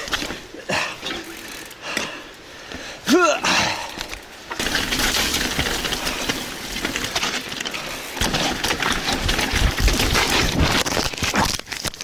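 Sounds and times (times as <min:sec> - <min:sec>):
bike rattling over ground: 0:00.0 - 0:02.2, 0:03.6 - 0:12.0
tyre and wind rush: 0:03.6 - 0:11.7.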